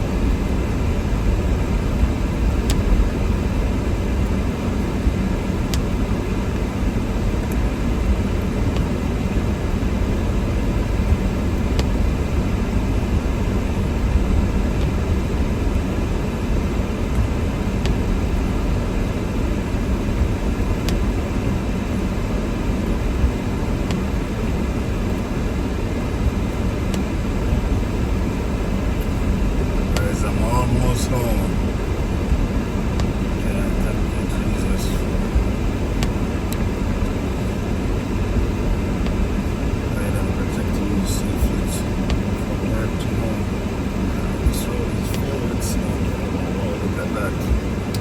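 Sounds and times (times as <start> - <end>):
car driving on snowy road: 0.0 - 48.0.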